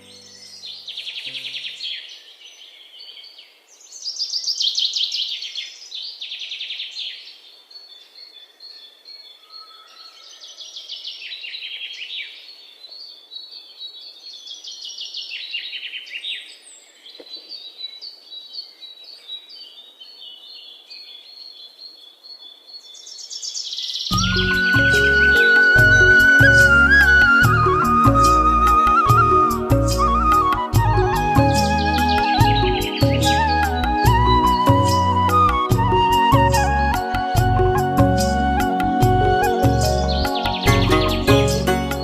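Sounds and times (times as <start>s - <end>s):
small birds chirping trills: 0.0s - 42.0s.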